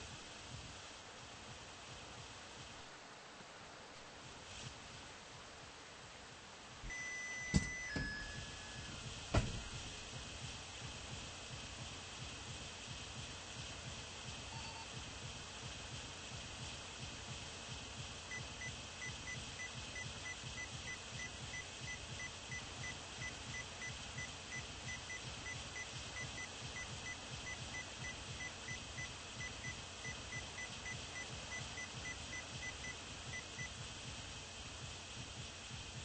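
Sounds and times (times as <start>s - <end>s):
steady hiss: 0.0s - 36.0s
high beeps: 6.9s - 9.0s.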